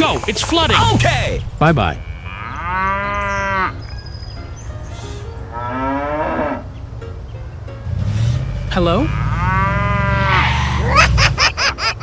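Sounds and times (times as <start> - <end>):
cow mooing: 2.0 - 3.8, 5.5 - 6.7, 7.9 - 10.9.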